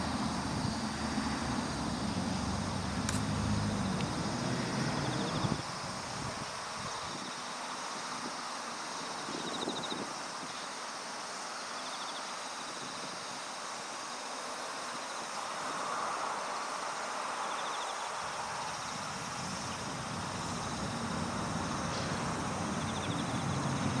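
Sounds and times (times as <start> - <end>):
low rotor drone: 0.0 - 5.7
wind noise on microphone: 0.0 - 7.4, 9.0 - 10.6
rc helicopter motor and rotor: 0.0 - 11.0, 17.5 - 24.0.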